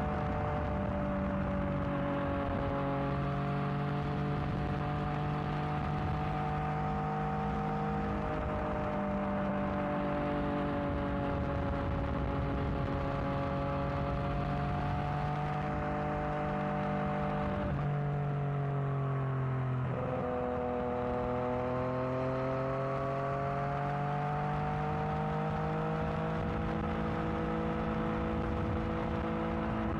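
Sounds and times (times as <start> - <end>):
motorcycle engine revving: 19.8 - 29.9.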